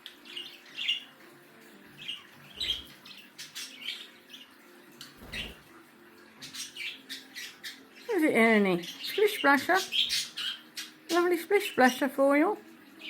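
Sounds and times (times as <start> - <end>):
budgerigars chirping: 2.0 - 4.5, 6.4 - 8.0, 8.8 - 11.2.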